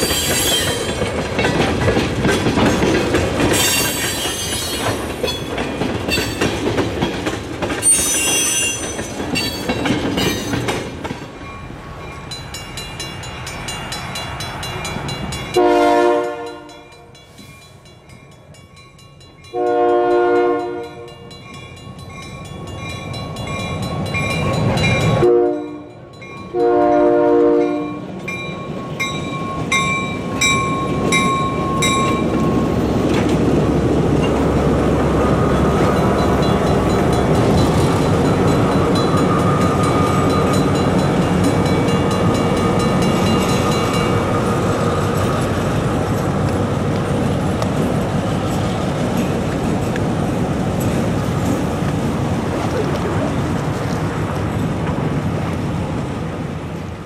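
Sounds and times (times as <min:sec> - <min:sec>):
crossing bell ringing: 0:00.0 - 0:01.8, 0:02.4 - 0:06.7, 0:07.8 - 0:33.0, 0:35.1 - 0:45.7
diesel locomotive engine: 0:00.0 - 0:57.0
locomotive horn: 0:15.6 - 0:17.1, 0:19.5 - 0:21.1, 0:25.2 - 0:28.0.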